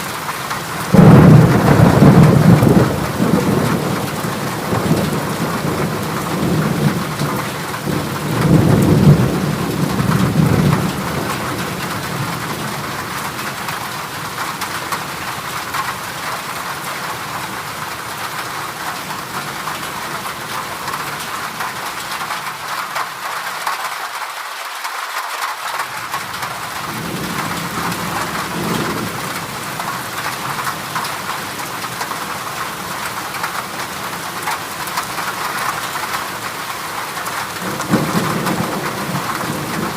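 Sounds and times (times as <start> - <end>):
rain on a metal roof: 0.0 - 39.9
thunder rolling: 0.9 - 12.9, 37.6 - 39.9.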